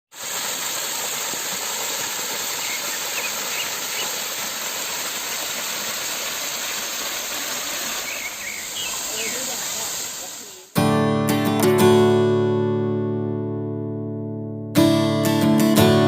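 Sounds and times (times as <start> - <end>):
steady rushing hiss: 0.1 - 10.8.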